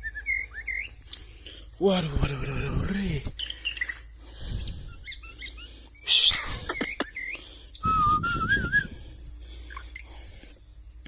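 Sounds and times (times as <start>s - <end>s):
bird chirps and whistles: 0.0s - 1.2s, 4.6s - 9.0s
high insect chirring: 0.0s - 11.0s
wavering whistle: 6.0s - 9.0s.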